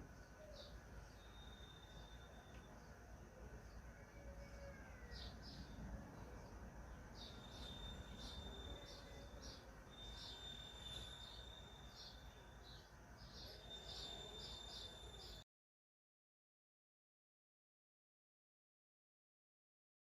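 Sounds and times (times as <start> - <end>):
small birds chirping: 0.0 - 15.4
thin high whine: 0.9 - 2.9, 7.2 - 15.4.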